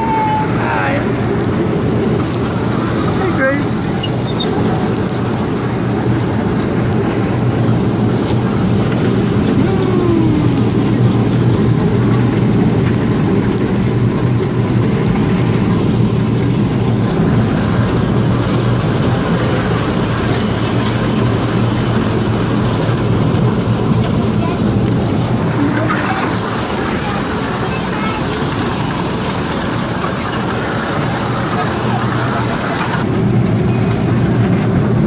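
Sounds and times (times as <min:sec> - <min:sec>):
kiddie train motor hum: 0:00.0 - 0:35.0
train cars rumbling and rattling: 0:00.0 - 0:35.0.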